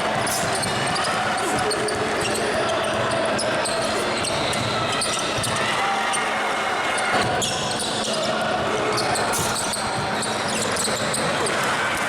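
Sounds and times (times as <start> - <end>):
crowd and player voices: 0.0 - 12.0
basketball bouncing on court: 0.1 - 5.7, 8.6 - 12.0.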